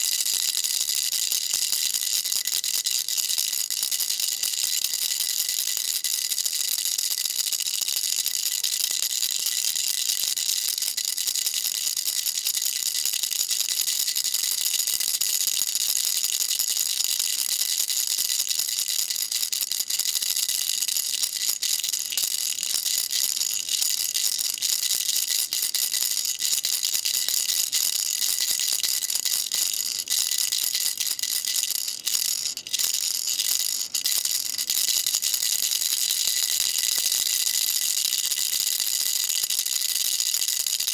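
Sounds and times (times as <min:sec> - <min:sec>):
baby rattle shaken: 0:17.6 - 0:40.9.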